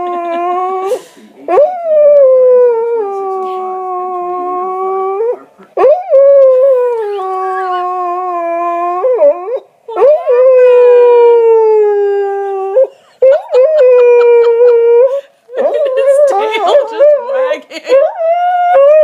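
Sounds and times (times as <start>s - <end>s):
dog howling: 4.0s - 19.0s.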